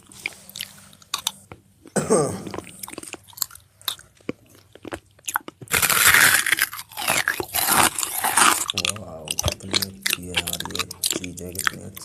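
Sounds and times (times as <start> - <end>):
crunchy chewing: 0.0 - 12.0
mouth clicks: 2.4 - 12.0.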